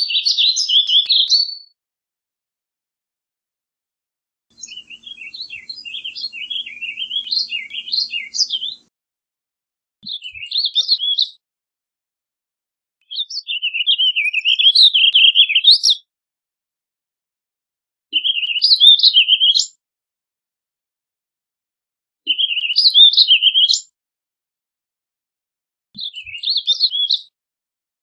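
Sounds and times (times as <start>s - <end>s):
songbird warbling: 4.6s - 8.8s.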